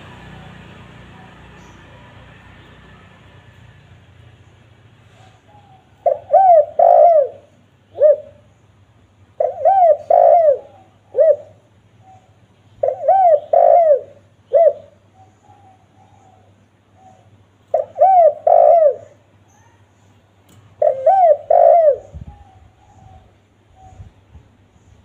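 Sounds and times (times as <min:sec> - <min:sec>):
dove cooing: 0:05.1 - 0:08.5, 0:09.4 - 0:19.7, 0:20.7 - 0:24.2.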